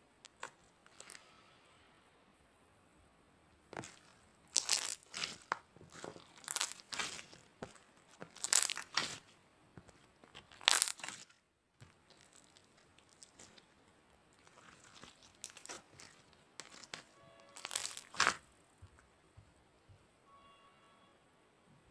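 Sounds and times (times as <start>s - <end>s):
slime squished by hand: 0.2s - 1.3s, 3.7s - 18.4s.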